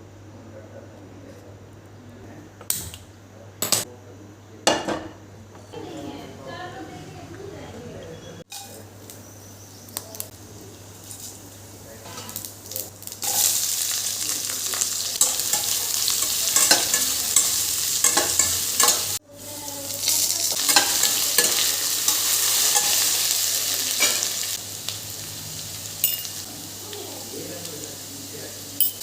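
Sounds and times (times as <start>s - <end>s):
food sizzling in a pan: 8.4s - 29.0s.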